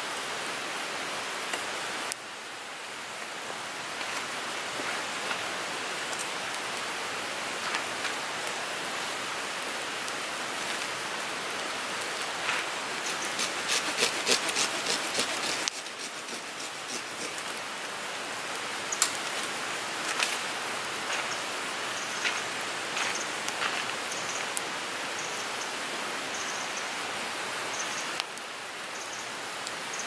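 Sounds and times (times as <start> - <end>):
wood fire crackling and popping: 12.0 - 17.6, 18.9 - 21.4.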